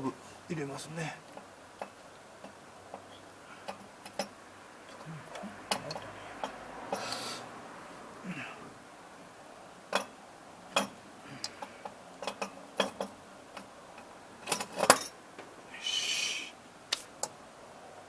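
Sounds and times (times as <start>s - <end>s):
metal clicks and knocks: 1.3s - 6.6s, 9.9s - 15.1s
short scraping hiss: 6.9s - 7.5s, 15.7s - 17.2s.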